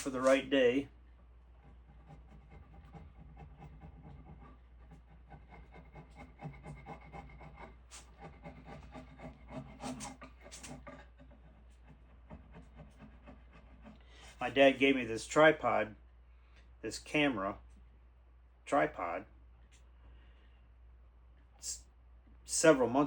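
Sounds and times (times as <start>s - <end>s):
scraping and rubbing on wood: 0.0s - 0.5s, 1.5s - 15.0s.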